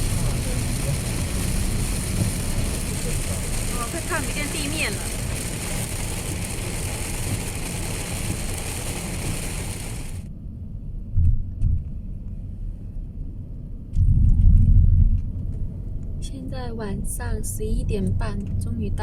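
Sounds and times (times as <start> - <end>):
heavy rain on a car: 0.0 - 10.3
low road rumble: 0.0 - 19.0
low thumps: 11.0 - 12.2.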